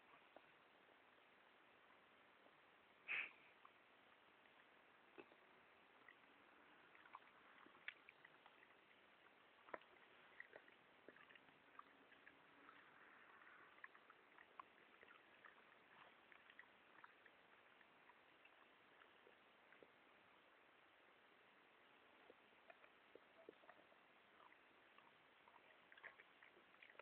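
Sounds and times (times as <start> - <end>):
dog chewing gum: 5.1 - 20.0, 22.3 - 27.0.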